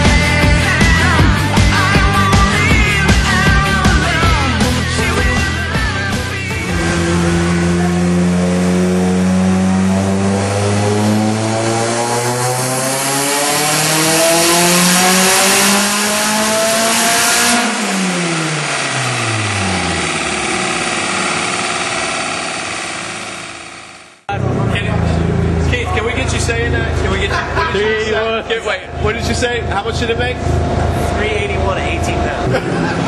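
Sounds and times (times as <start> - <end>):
car engine revving at full throttle: 0.0 - 27.4, 28.4 - 33.0.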